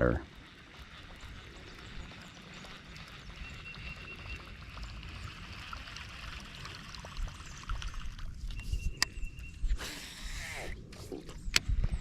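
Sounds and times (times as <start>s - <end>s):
water trickling and running: 0.0s - 9.6s.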